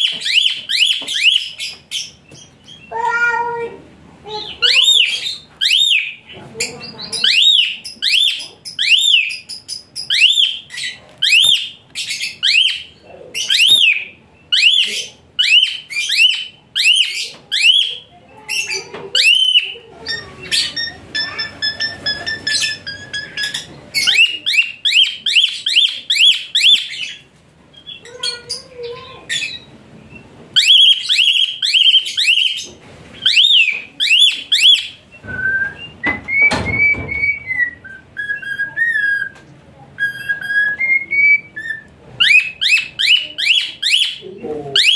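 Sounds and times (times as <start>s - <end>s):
starling shrill harsh calls: 4.3s - 27.2s, 30.6s - 35.0s, 40.0s - 44.2s
whistled bird notes: 6.9s - 27.2s, 29.4s - 39.4s, 40.0s - 44.2s.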